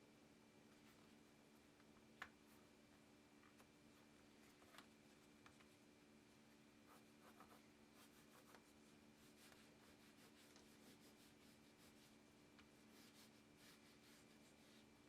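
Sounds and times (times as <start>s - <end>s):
pen scratching across a surface: 6.8s - 12.2s.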